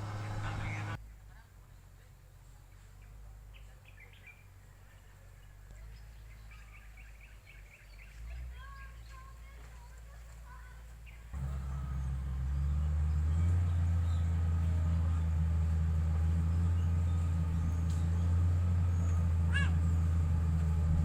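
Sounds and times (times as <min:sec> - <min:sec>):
diesel engine humming: 0:00.0 - 0:01.0, 0:04.5 - 0:21.0.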